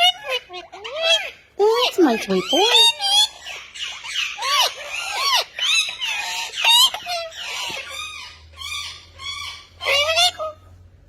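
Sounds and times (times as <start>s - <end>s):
parrot whistling and chirping: 2.3s - 10.7s.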